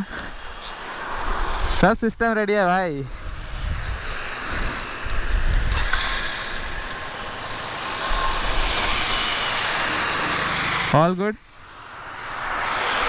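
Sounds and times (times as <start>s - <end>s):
motorcycle engine and road noise: 0.0s - 13.0s
wind on microphone: 1.1s - 2.2s, 3.0s - 7.1s, 7.9s - 9.9s.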